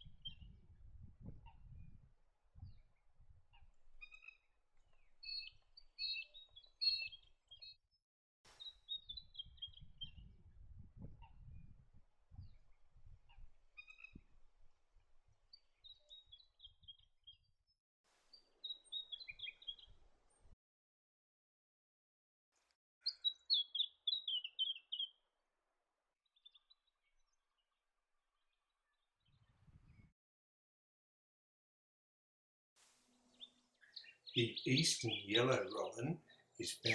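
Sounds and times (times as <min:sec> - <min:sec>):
robin singing high notes: 0:34.0 - 0:36.9.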